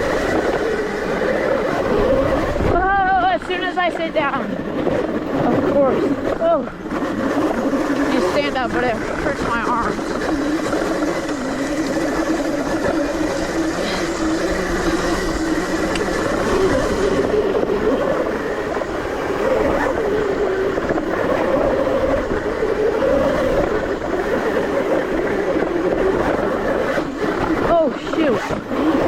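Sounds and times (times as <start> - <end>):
electric dirt bike motor whine: 0.0 - 29.0.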